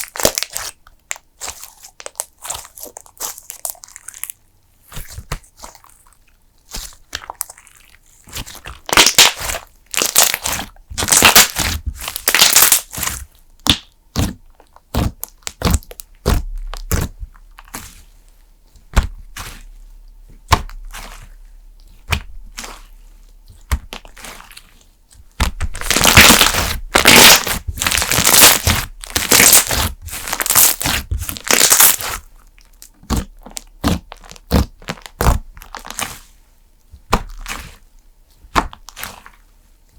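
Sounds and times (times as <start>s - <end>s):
slime crackling and popping: 0.0s - 4.4s, 6.7s - 17.9s, 25.3s - 36.2s.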